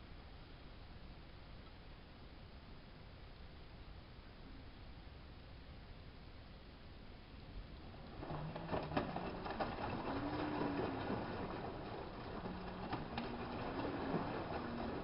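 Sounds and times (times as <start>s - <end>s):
washing machine motor hum: 7.5s - 15.0s.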